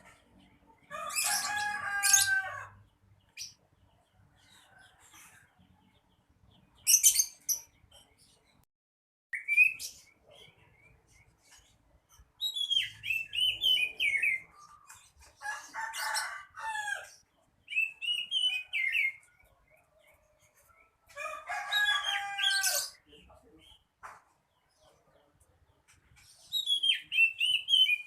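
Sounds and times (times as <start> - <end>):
bird singing chirps and whistles: 9.4 - 10.2, 12.4 - 14.5, 17.7 - 19.2, 26.5 - 28.0.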